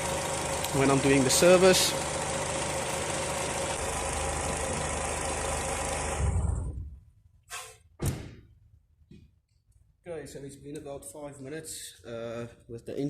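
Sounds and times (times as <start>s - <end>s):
car engine idling: 0.0s - 6.7s
power steering pump whine: 0.0s - 7.0s.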